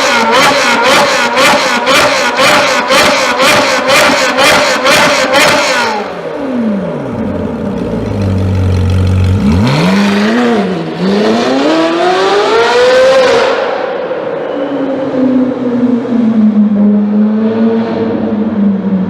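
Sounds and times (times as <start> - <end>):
car engine revving: 0.0 - 14.2
engine crackles: 1.9 - 11.3.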